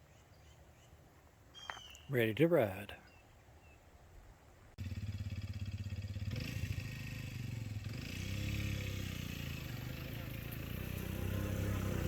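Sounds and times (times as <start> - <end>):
small motorbike engine revving: 4.8 - 12.0.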